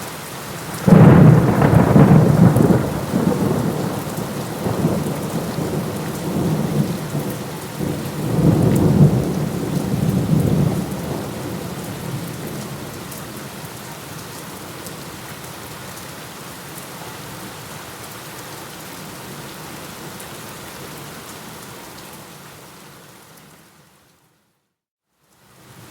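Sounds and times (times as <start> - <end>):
steady rain: 0.0 - 25.9
rolling thunder rumble: 0.8 - 13.0.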